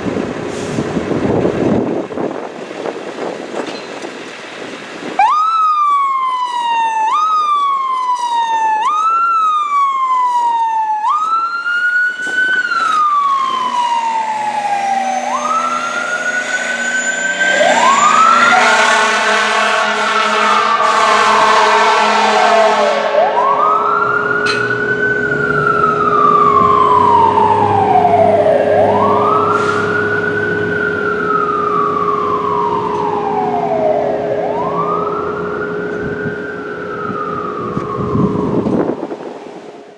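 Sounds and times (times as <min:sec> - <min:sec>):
fire engine siren wailing: 0:04.9 - 0:39.9
steady lower tone: 0:13.0 - 0:21.5, 0:22.3 - 0:39.9.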